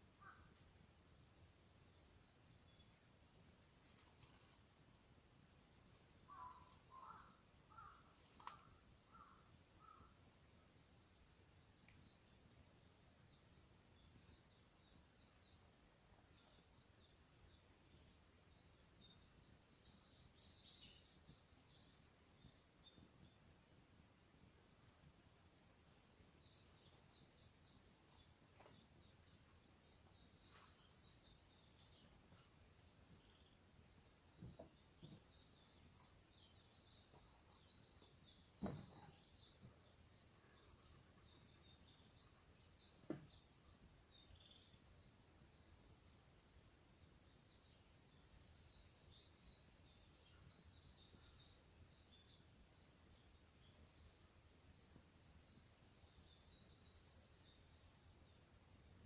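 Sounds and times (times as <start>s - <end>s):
faint high chirping: 5.9s - 10.2s, 24.8s - 46.6s.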